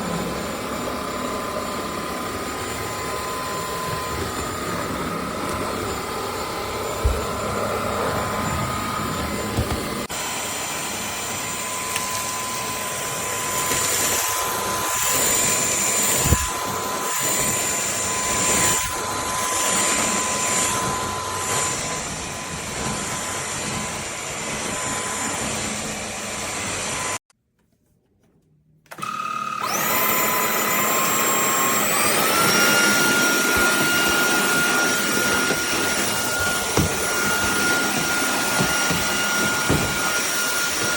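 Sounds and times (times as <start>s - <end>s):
stick vacuum motor whine: 0.0s - 27.2s, 28.9s - 40.9s.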